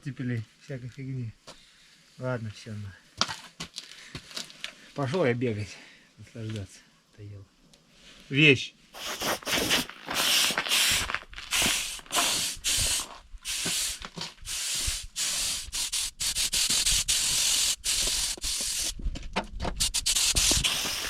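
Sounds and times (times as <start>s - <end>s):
running footsteps in snow: 9.0s - 14.0s.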